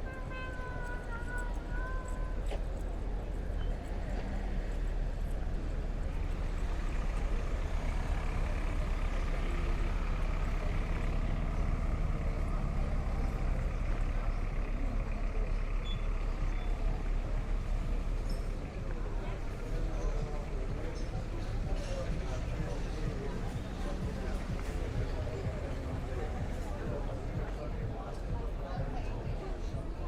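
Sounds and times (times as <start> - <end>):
heavy vehicle engine rumbling: 0.0 - 30.0.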